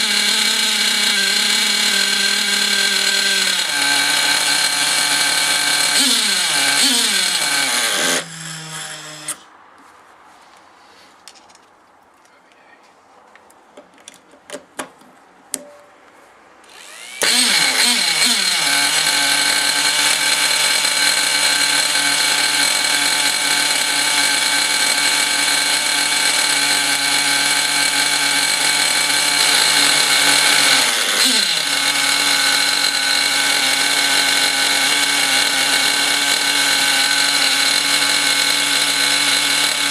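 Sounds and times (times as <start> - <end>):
model engine running: 0.0 - 8.4, 16.7 - 39.9.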